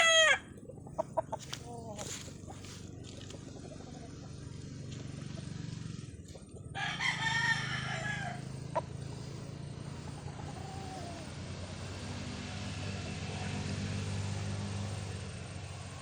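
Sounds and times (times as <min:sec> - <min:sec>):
rooster crowing: 0:00.0 - 0:00.5, 0:06.7 - 0:08.8, 0:10.3 - 0:11.3
steady low hum: 0:00.0 - 0:16.0.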